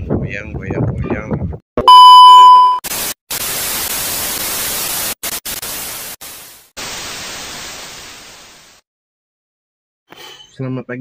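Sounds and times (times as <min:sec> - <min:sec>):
static hiss: 0:02.9 - 0:08.8.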